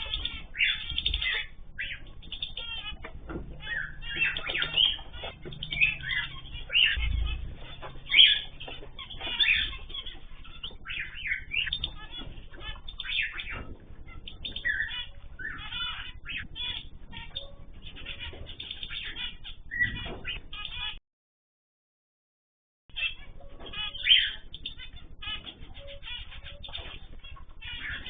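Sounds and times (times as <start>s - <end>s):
cage birds chirping: 0.0s - 21.0s, 22.9s - 28.0s
low rumble: 1.6s - 20.6s.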